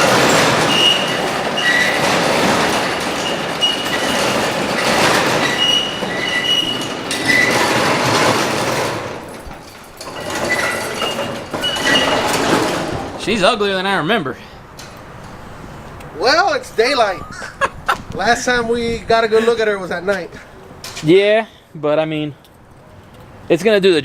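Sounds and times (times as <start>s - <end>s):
high-pitched door squeals: 0.0s - 9.0s, 10.0s - 12.9s
metal roll-up door rattling: 0.0s - 13.8s.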